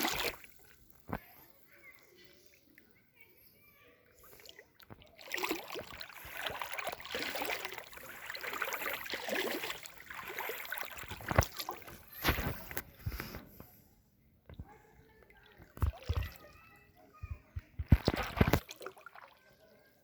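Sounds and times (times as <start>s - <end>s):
floodwater splashing and sloshing: 0.0s - 1.3s, 4.2s - 13.3s, 15.2s - 16.6s, 17.8s - 19.9s.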